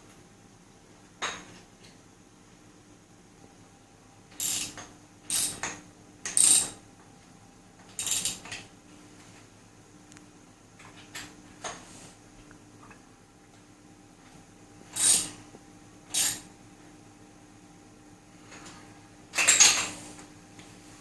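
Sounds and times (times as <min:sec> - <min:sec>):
ratchet spanner clicking: 0:04.4 - 0:05.7, 0:06.3 - 0:06.7, 0:08.0 - 0:08.5, 0:15.0 - 0:15.4, 0:16.1 - 0:16.4.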